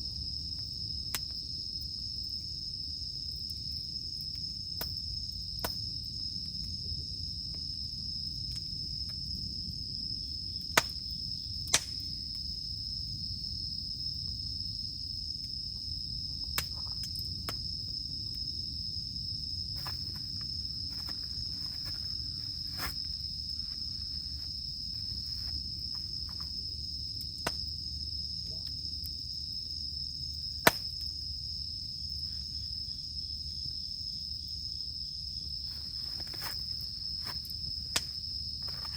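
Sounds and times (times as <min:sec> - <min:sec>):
campfire crackling: 0:00.0 - 0:38.9
cicadas droning: 0:00.0 - 0:38.9.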